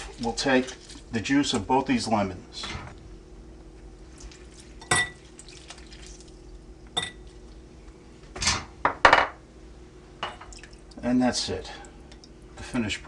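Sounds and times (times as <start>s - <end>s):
juice dripping: 2.9s - 8.0s, 10.4s - 12.7s.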